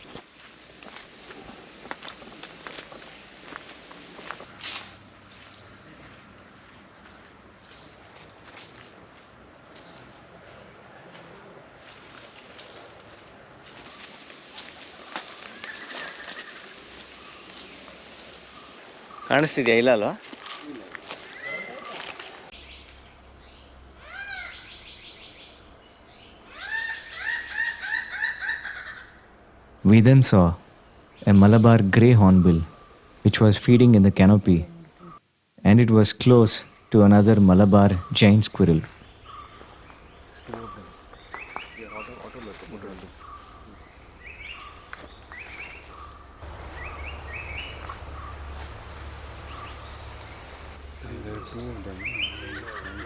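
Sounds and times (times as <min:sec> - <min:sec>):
bird calling: 0:22.6 - 0:35.2, 0:36.2 - 0:53.0
animal ringing calls: 0:26.5 - 0:29.2
low rumble: 0:46.4 - 0:51.2.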